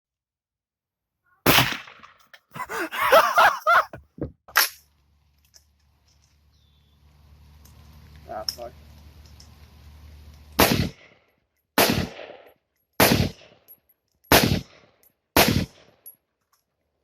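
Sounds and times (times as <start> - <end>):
person yelling: 2.6 - 4.0.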